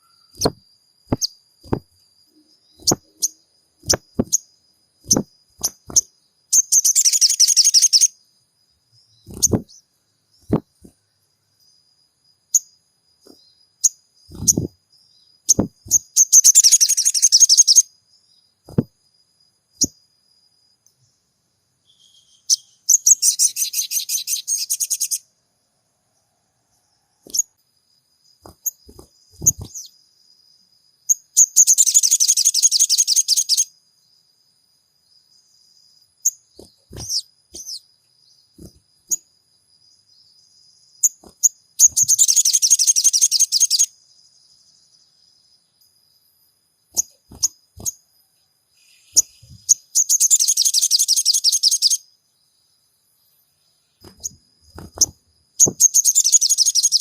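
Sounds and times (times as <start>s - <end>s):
bird chirps: 0.0s - 8.2s, 8.9s - 11.9s, 12.5s - 18.9s, 19.8s - 20.0s, 21.8s - 25.3s, 26.7s - 27.6s, 28.2s - 33.8s, 35.3s - 46.0s, 46.9s - 52.1s, 53.2s - 57.0s.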